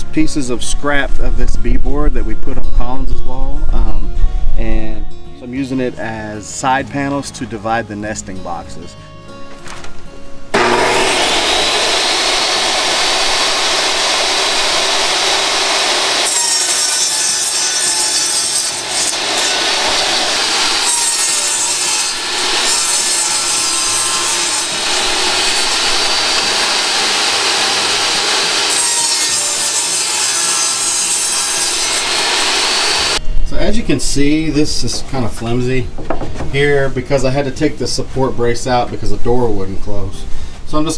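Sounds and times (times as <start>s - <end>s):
saw cutting thin panels: 10.6s - 33.2s.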